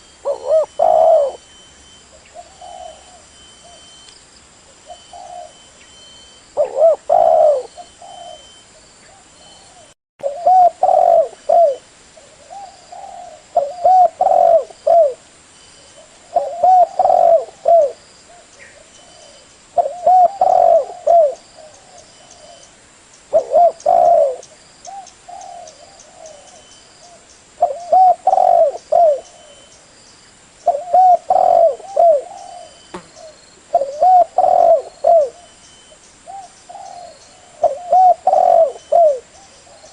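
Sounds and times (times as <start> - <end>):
dove cooing: 0.0 - 4.0, 4.8 - 5.7, 6.6 - 15.2, 16.0 - 22.7, 23.3 - 29.7, 30.7 - 35.6, 36.2 - 39.9.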